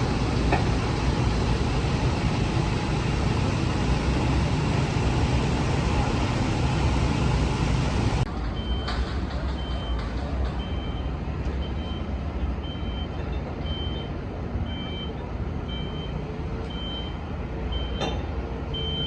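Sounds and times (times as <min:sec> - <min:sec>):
dump truck engine rumbling: 0:00.0 - 0:19.0
warning beeper beeping: 0:18.7 - 0:19.0.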